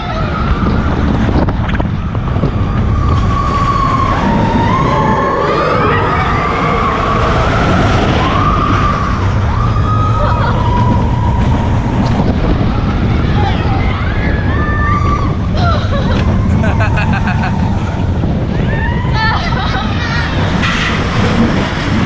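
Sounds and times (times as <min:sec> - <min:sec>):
roller coaster train rumbling: 0:00.0 - 0:22.0
wind rushing: 0:00.0 - 0:22.0
riders screaming: 0:02.5 - 0:12.0.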